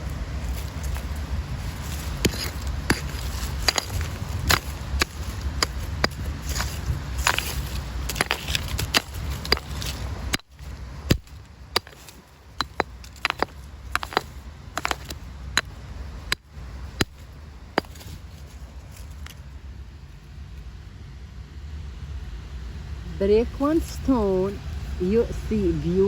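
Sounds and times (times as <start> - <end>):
low steady rumble: 0.0 - 26.0
stone knocking on stone: 11.8 - 15.7.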